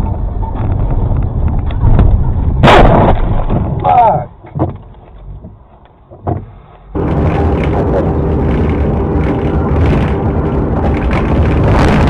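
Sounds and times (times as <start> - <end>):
vehicle road and wind noise: 0.0 - 12.0.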